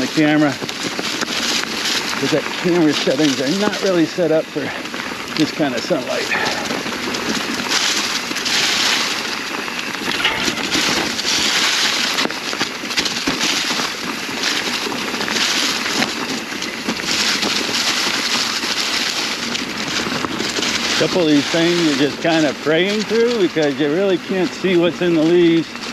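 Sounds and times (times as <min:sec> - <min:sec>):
bike tyres crunching dry leaves: 0:00.0 - 0:25.9.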